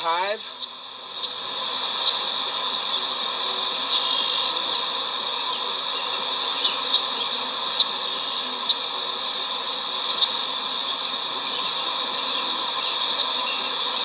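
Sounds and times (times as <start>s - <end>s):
bee swarm buzzing: 0.0s - 14.0s
faint ticks: 10.0s - 10.6s.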